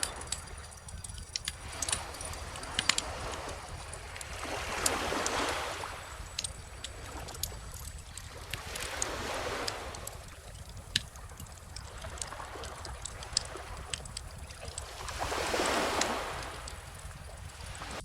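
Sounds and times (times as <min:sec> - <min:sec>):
wood fire crackling: 0:00.0 - 0:17.8
ocean waves washing ashore: 0:00.0 - 0:18.0.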